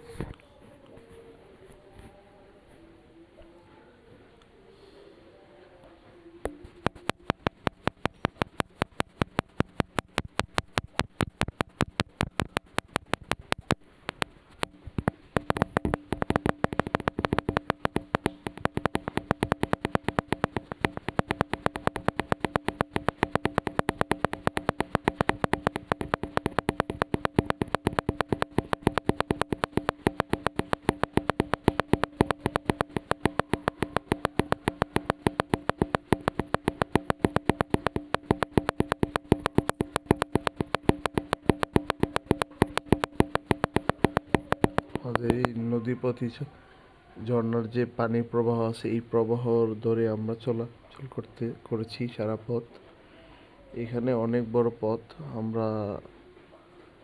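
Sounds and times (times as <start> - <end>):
sharp electronic clicks: 6.5 - 45.6.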